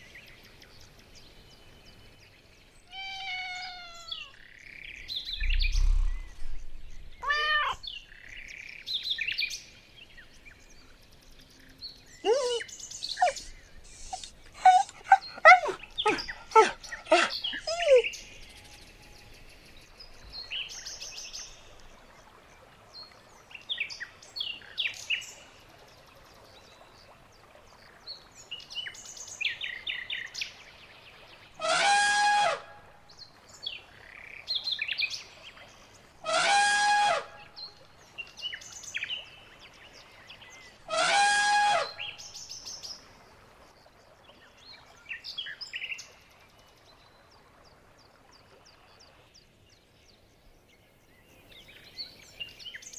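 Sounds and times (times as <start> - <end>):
birds chirping and twittering: 0.0 - 22.0
loud harsh bird calls: 2.9 - 4.4, 7.2 - 7.9.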